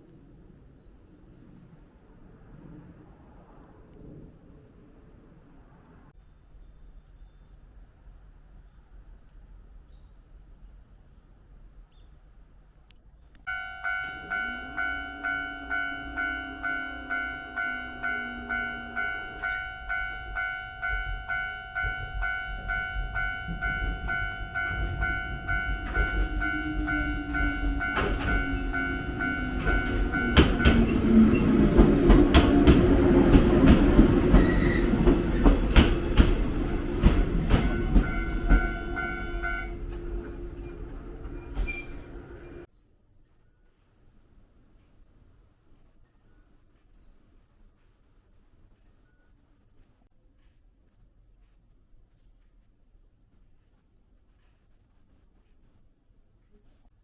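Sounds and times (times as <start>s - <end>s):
train motors humming: 11.4s - 42.7s
level-crossing alarm ringing: 13.5s - 42.7s
wheels clacking over rail joints: 14.0s - 21.0s, 21.8s - 42.7s.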